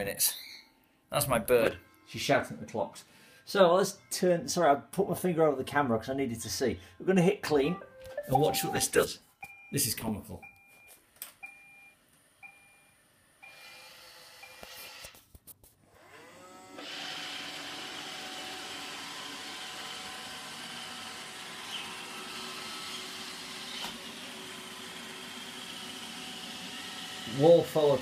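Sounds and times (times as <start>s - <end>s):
robot vacuum motor humming: 16.0s - 27.8s.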